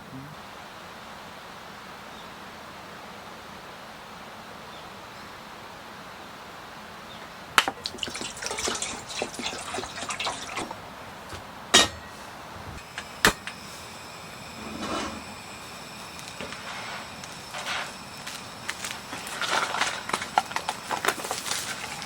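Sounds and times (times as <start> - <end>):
rain hiss: 0.0 - 22.0
liquid trickling and dripping: 7.6 - 10.8.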